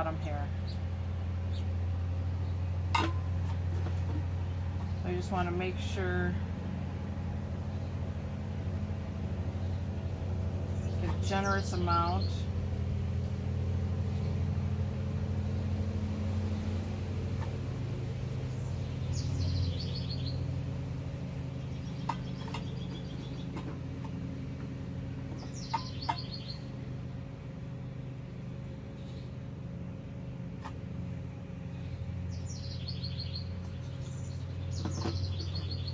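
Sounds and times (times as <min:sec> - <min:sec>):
songbird trilling: 0:00.5 - 0:01.8, 0:10.8 - 0:12.5, 0:18.5 - 0:20.6, 0:21.5 - 0:26.8, 0:31.7 - 0:35.9.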